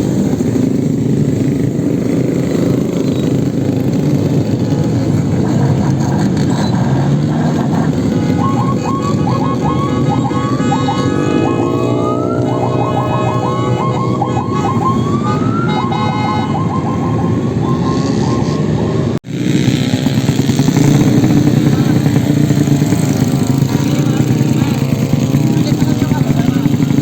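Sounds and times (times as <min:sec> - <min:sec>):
motorcycle engine drone: 0:00.0 - 0:27.0
motorcycle engines revving: 0:00.0 - 0:27.0.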